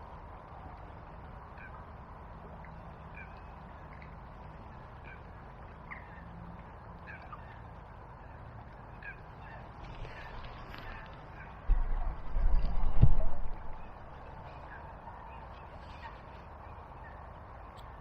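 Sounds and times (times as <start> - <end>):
river water flowing: 0.0 - 18.0
bird calling: 8.2 - 17.8.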